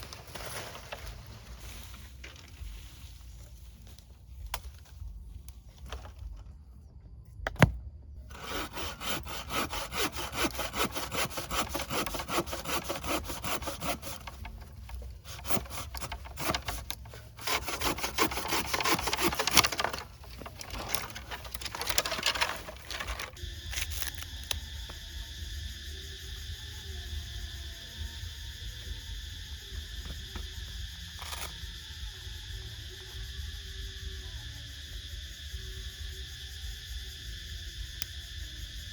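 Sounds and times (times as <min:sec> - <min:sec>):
hand saw cutting wood: 0:08.3 - 0:23.4.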